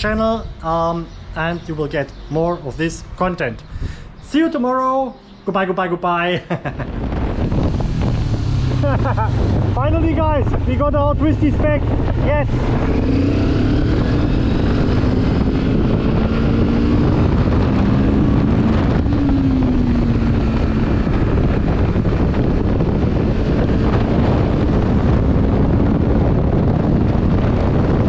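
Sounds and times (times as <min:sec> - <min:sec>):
wind noise on microphone: 0:00.0 - 0:28.0
motorcycle engine running: 0:06.9 - 0:28.0.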